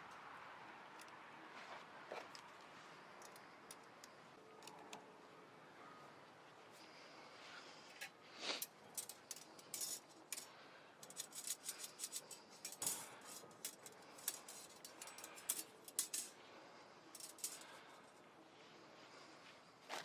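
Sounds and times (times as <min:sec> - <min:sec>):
metal utensils clinking: 0:08.5 - 0:16.4, 0:17.1 - 0:18.0.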